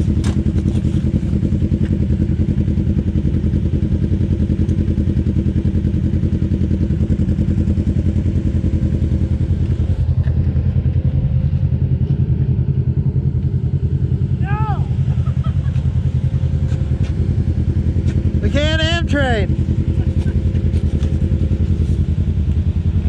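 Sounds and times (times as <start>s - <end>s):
off-road vehicle engine idling: 0.0s - 23.0s.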